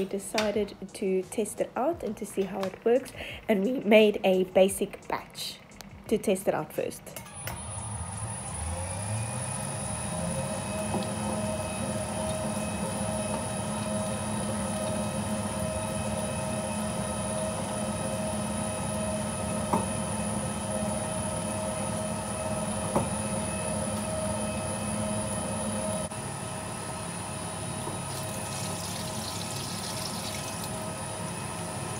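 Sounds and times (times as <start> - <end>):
electric mixer motor whining: 7.2 - 26.2, 27.0 - 31.9.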